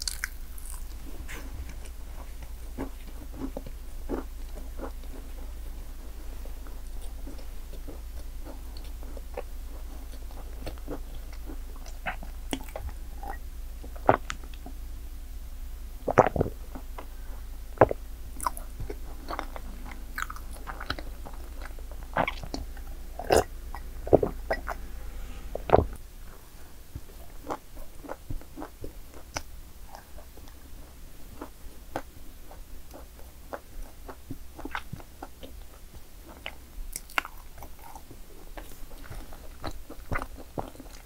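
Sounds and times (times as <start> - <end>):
crunchy bites: 0.0 - 1.8
chewing: 0.0 - 5.7, 6.4 - 14.7, 17.8 - 24.9, 27.4 - 41.0.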